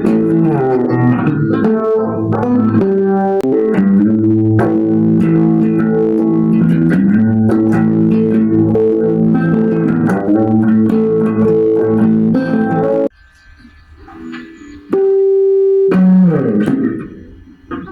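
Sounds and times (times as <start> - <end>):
clean electric guitar: 0.0 - 13.1, 14.1 - 17.9
low bass notes: 0.0 - 13.1.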